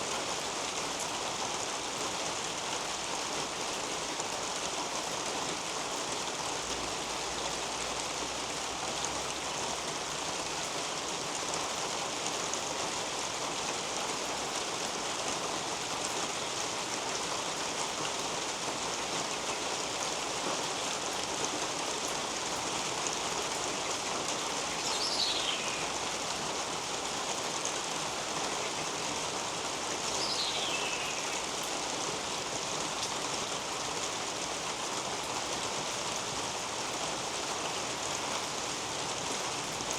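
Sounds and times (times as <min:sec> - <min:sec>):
rain dripping on leaves: 0:00.0 - 0:39.9
bird whistling: 0:24.9 - 0:25.9, 0:30.2 - 0:31.3.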